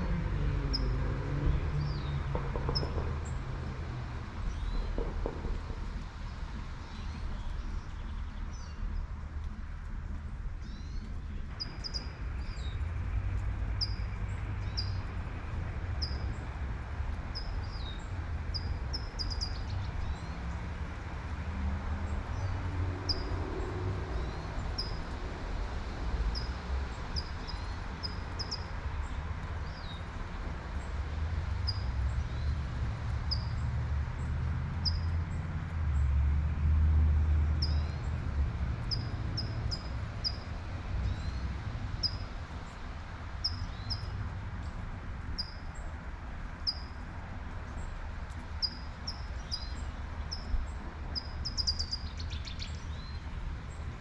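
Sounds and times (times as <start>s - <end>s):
traffic rumble: 0.0s - 54.0s
light rain falling: 5.4s - 51.7s
bird chirping: 51.2s - 53.3s.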